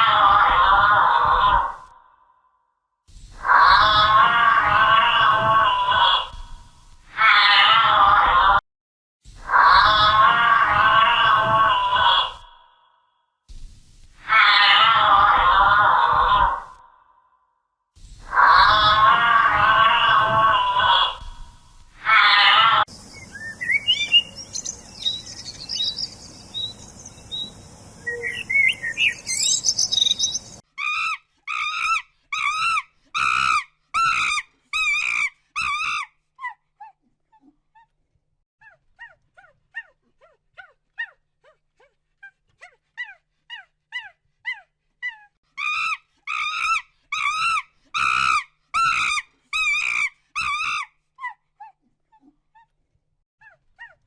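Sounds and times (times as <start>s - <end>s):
soft bird chirps: 22.9s - 30.6s
bird calling wavering notes: 23.1s - 30.6s.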